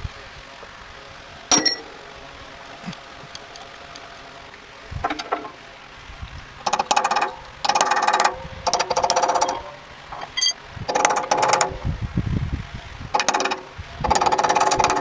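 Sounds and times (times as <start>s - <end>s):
metallic clink: 1.5s - 2.0s, 9.0s - 10.6s
pneumatic tool clattering: 1.5s - 2.2s, 5.0s - 5.6s, 6.6s - 12.0s, 13.1s - 15.0s.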